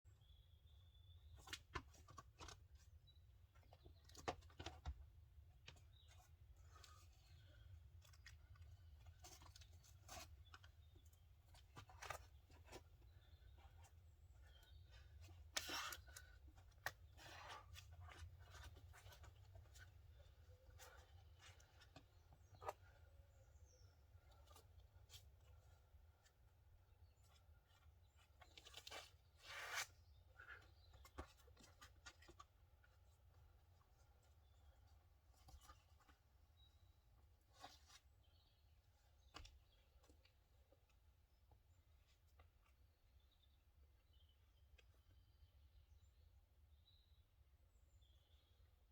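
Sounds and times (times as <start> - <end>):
shoes and hands scuffing rock: 28.4 - 31.6
climbing shoes scuffing on rock: 28.9 - 29.9
short scrape on rock: 29.4 - 29.9.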